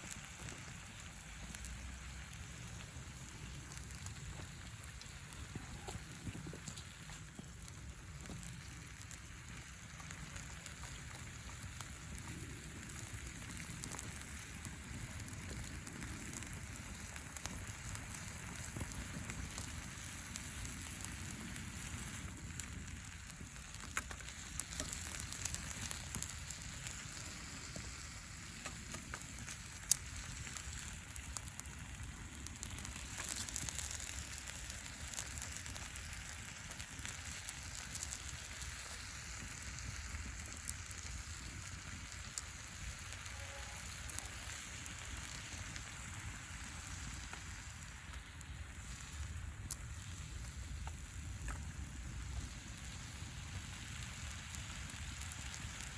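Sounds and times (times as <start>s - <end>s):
campfire crackling and popping: 0.0s - 55.9s
fire hiss: 0.0s - 55.9s.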